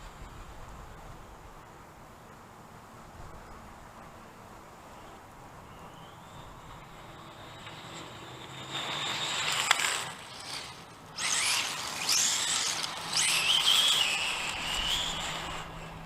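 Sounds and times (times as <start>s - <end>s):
rc car electric motor whining: 5.9s - 16.0s
tyres rushing on pavement: 6.2s - 16.0s.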